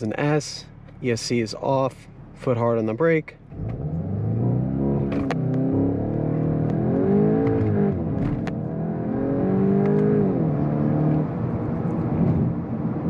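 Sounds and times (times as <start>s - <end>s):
car engine revving under full throttle: 3.4s - 13.0s
gearbox upshifts: 3.5s - 8.7s.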